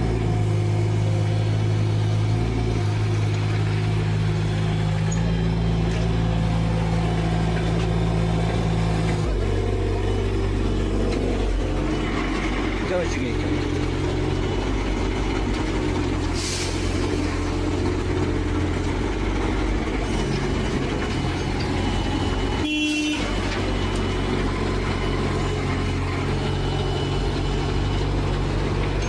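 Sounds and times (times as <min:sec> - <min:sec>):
heavy vehicle engine running: 0:00.0 - 0:29.0.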